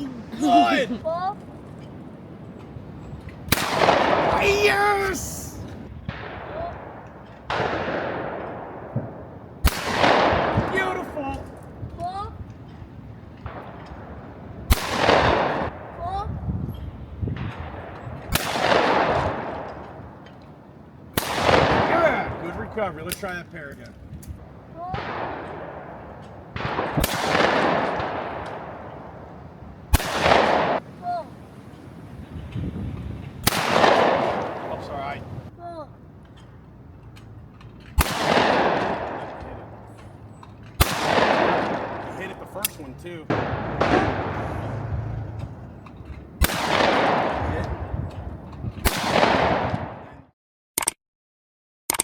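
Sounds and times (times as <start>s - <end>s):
shotgun reports with long echo: 3.5s - 11.8s, 13.4s - 16.5s, 17.3s - 20.2s, 21.2s - 31.5s, 33.4s - 35.5s, 38.0s - 40.0s, 40.8s - 45.7s, 46.4s - 48.1s, 48.8s - 50.3s.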